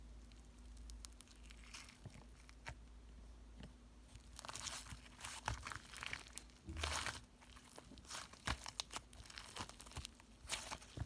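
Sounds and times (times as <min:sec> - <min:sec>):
hands kneading clay: 0:04.1 - 0:11.0.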